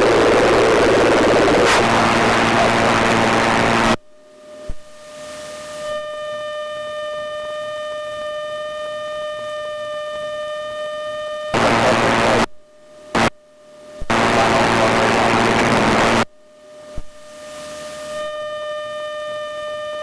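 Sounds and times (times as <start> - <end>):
radio static hiss bursts: 0.0 - 4.0, 4.8 - 6.0, 11.5 - 13.4, 14.0 - 16.3, 17.0 - 18.3.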